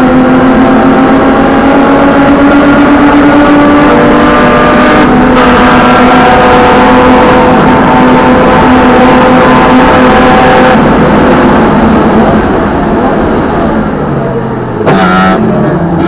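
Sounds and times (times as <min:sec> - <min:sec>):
race car engine revving: 0:00.0 - 0:16.0.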